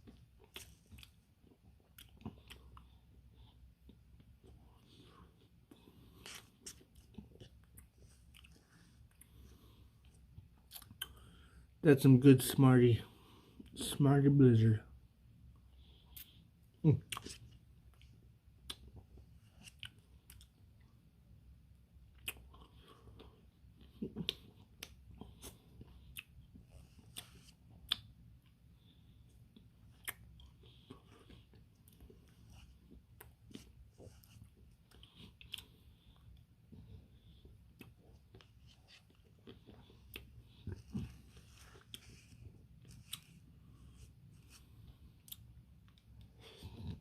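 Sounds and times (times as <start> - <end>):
chewing and mouth smacks: 0.0 - 3.0, 5.7 - 9.4, 10.0 - 11.3, 17.0 - 20.9, 22.1 - 28.6, 29.5 - 43.5
mouth smacks while eating: 22.1 - 22.7, 27.1 - 28.2, 29.6 - 32.0.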